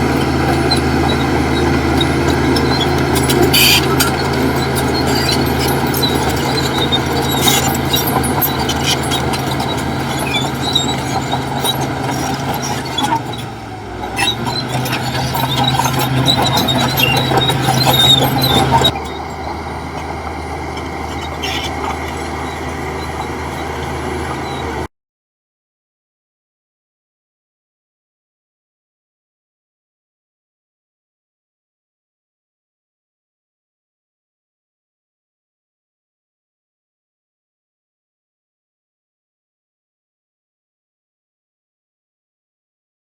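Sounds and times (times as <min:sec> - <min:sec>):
heavy diesel machinery running: 0:00.0 - 0:24.9
high squeaks: 0:00.0 - 0:24.9.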